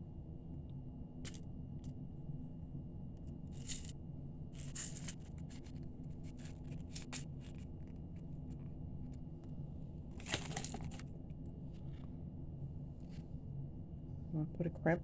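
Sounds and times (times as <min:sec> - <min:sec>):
steady low hum: 0:00.0 - 0:15.0
short rustles of handling: 0:10.2 - 0:11.0.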